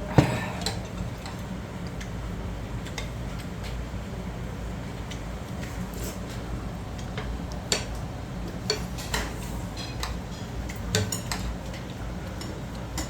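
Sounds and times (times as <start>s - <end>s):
utensils clinking against dishes: 7.6s - 13.0s.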